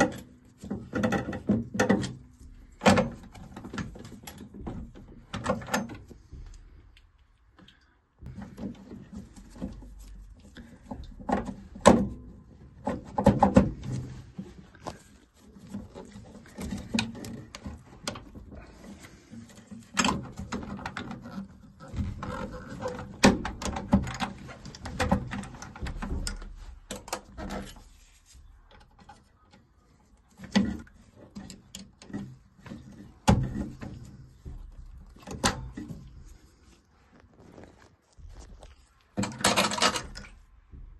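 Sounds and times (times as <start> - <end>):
tools clicking and rattling: 39.2 - 40.4.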